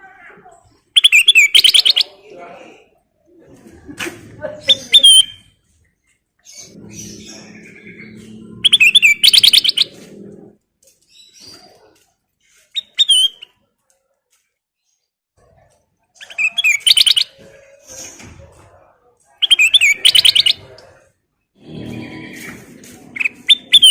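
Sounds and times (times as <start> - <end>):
bird singing: 1.0 - 2.3, 6.4 - 10.4, 16.2 - 17.8, 19.4 - 20.7, 23.2 - 23.9.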